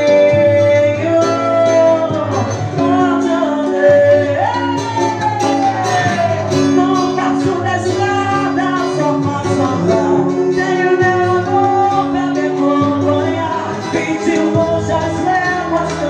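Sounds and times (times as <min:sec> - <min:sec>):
latin trio music: 0:00.0 - 0:16.0.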